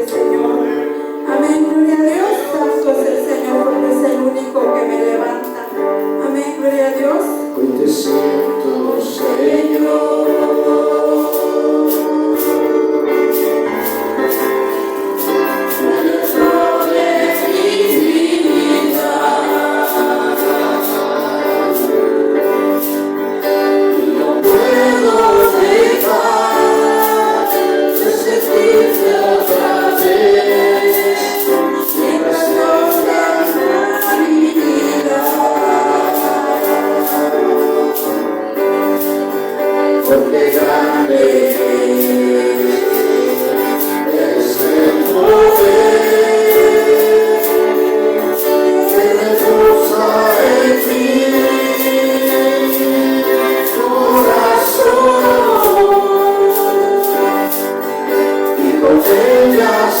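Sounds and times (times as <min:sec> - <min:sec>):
congregation singing: 0:00.0 - 1:00.0
steady percussion beat: 0:11.2 - 0:38.2
woman's lead vocal: 0:24.1 - 0:38.4, 0:40.1 - 0:57.4.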